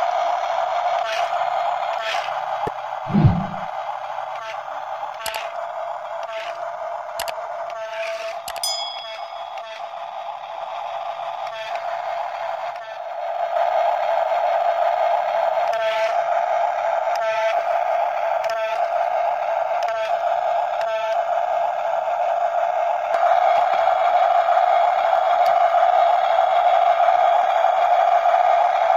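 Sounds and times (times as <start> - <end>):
toy motor and gearbox whirring: 0.7 - 2.4, 4.3 - 13.3, 15.6 - 16.3, 17.0 - 19.0, 19.7 - 21.3, 25.2 - 26.7.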